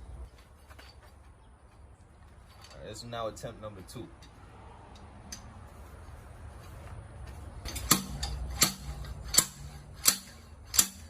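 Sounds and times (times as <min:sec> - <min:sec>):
metal on metal clanks: 0:07.6 - 0:11.0.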